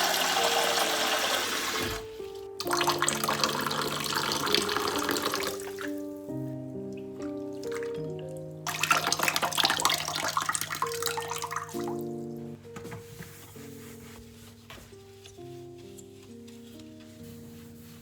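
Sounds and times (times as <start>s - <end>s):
water running: 0.0s - 6.2s, 6.9s - 12.2s
soft background music: 0.0s - 18.0s.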